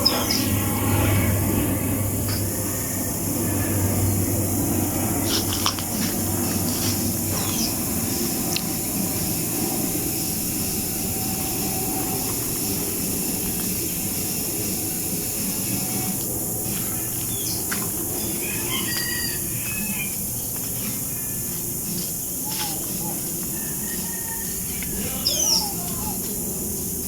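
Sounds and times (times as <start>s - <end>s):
bird chirps: 0.0s - 1.0s, 6.6s - 8.7s, 15.3s - 26.5s
jet engines rushing: 0.0s - 27.0s.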